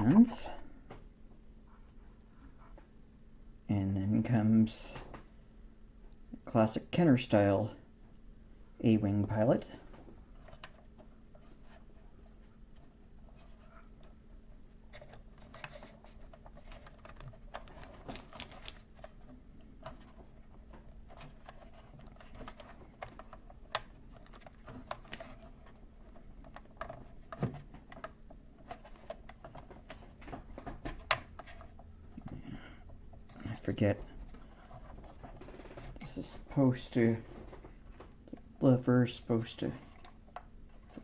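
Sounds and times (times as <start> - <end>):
faint steady hum: 0.0 - 41.0
hard plastic clicks and rattles: 15.0 - 32.4.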